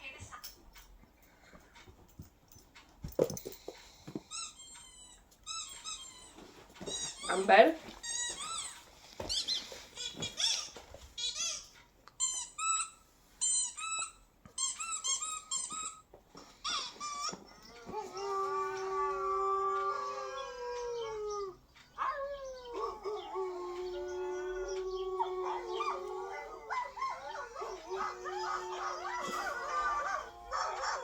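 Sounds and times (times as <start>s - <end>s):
dog whining: 4.2s - 31.0s
dog howling: 17.5s - 31.0s.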